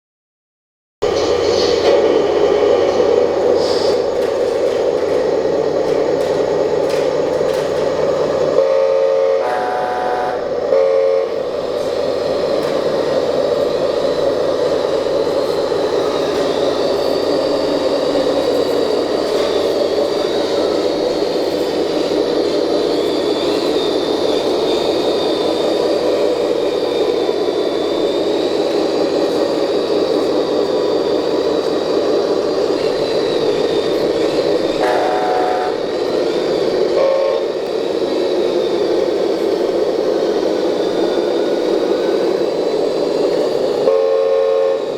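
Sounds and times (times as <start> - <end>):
horn-like toot: 8.6 - 11.4, 34.8 - 35.8, 43.9 - 44.9.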